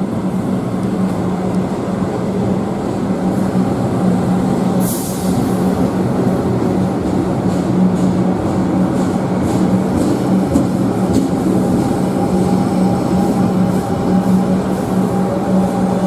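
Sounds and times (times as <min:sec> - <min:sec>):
higher train tone: 0:00.0 - 0:16.0
train rumbling past: 0:00.0 - 0:16.0.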